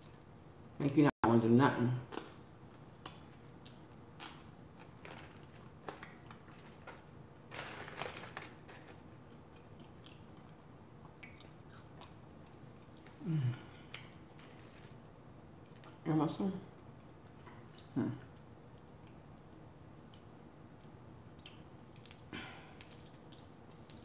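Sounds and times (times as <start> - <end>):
crunching fried food: 2.1 - 12.2, 13.9 - 16.0, 20.1 - 24.0.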